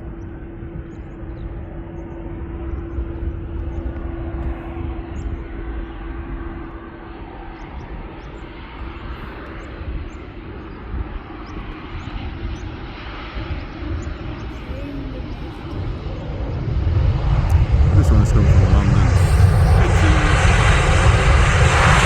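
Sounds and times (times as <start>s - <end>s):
jet airliner engines rumbling: 0.0s - 22.0s
steady hum: 17.4s - 22.0s.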